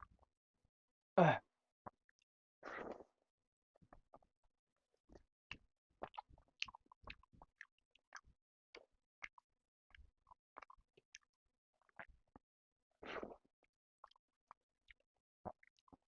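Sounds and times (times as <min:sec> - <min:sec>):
person chewing food: 0:02.6 - 0:03.1, 0:05.1 - 0:12.4, 0:13.0 - 0:16.0.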